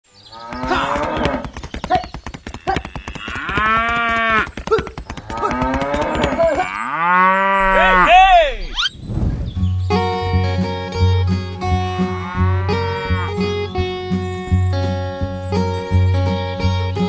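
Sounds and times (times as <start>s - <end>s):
cattle mooing: 0.4s - 1.5s, 2.6s - 8.9s, 11.6s - 13.7s.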